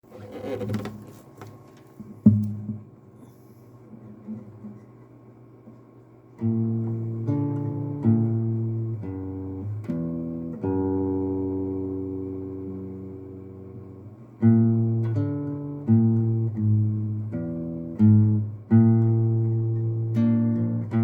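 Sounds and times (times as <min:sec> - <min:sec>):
acoustic guitar chords: 0:02.2 - 0:03.1, 0:06.4 - 0:21.0.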